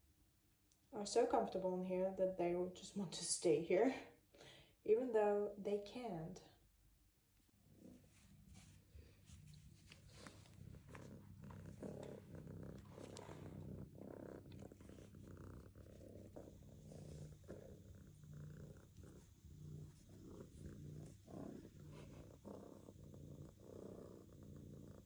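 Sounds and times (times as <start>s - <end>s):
cat purring: 7.5s - 25.0s.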